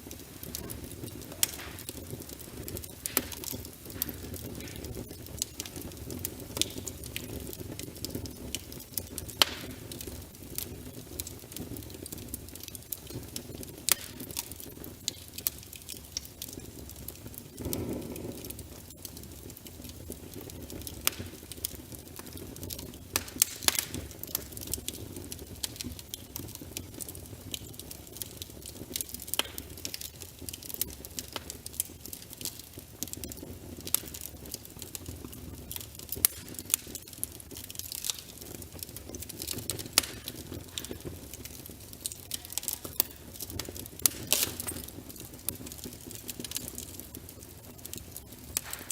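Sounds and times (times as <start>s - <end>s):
fire crackling and popping: 0.0s - 48.9s
low rumble of flames: 0.0s - 48.9s.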